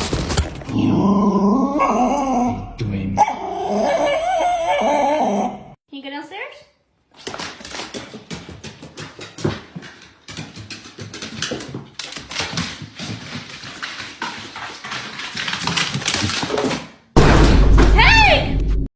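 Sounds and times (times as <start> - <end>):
dog sounds: 0.7 - 5.8.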